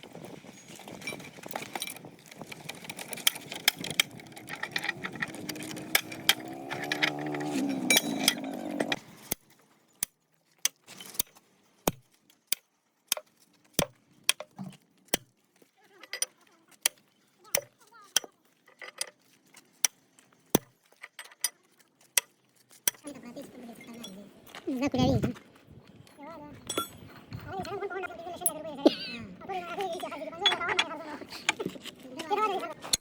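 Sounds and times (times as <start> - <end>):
metal tools clinking: 0.2 - 10.1, 15.9 - 23.0, 23.8 - 24.3, 26.0 - 27.2, 29.8 - 31.6.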